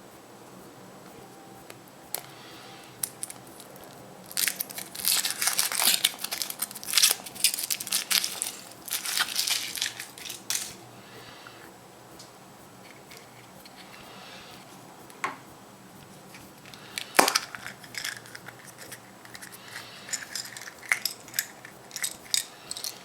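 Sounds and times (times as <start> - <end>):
foil wrapper crinkling and tearing: 3.0 - 10.7.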